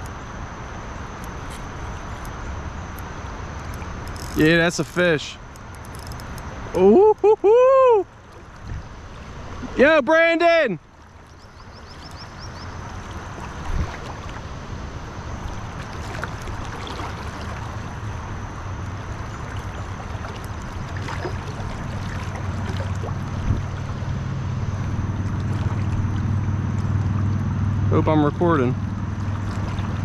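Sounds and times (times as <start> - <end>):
river water rushing: 7.7 - 27.9
wind on microphone: 8.6 - 9.0, 13.4 - 14.3, 23.0 - 26.3.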